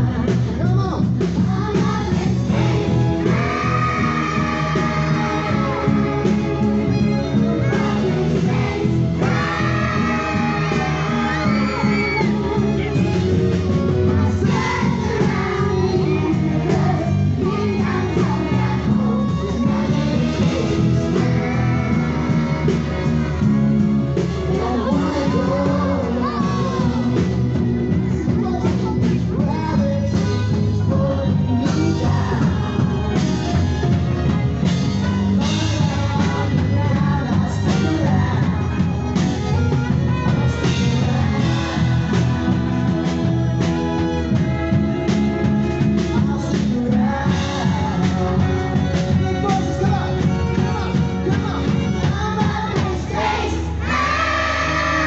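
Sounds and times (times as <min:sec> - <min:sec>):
backing track with steady beat: 0:00.0 - 0:55.0
group of young people singing: 0:01.4 - 0:27.5, 0:29.5 - 0:33.6, 0:40.1 - 0:50.0, 0:52.0 - 0:55.0.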